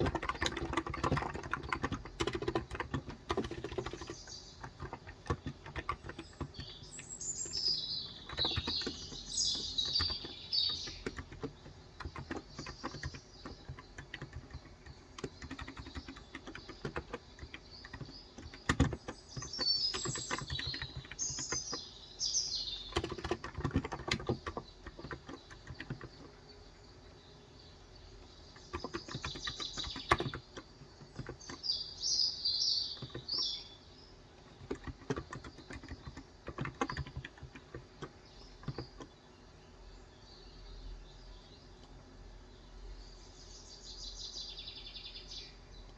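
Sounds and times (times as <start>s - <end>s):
keyboard typing: 0.0s - 21.9s, 22.6s - 26.4s, 28.2s - 31.8s, 32.9s - 33.6s, 34.4s - 39.2s
small bird twittering: 0.0s - 26.7s, 27.4s - 39.2s.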